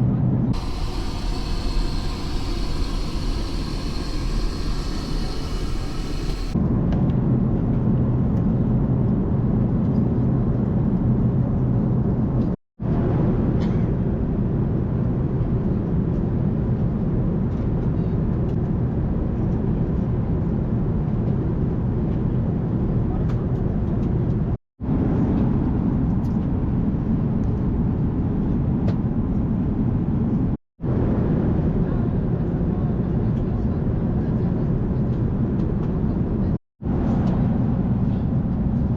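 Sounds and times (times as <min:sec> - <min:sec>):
aircraft engine drone: 0:00.6 - 0:06.6
rushing air: 0:00.6 - 0:06.6.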